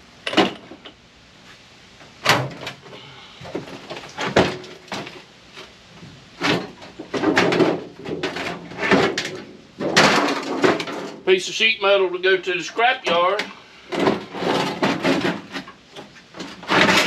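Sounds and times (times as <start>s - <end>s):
sheet metal clanks and scrapes: 6.4s - 11.2s, 13.0s - 17.0s.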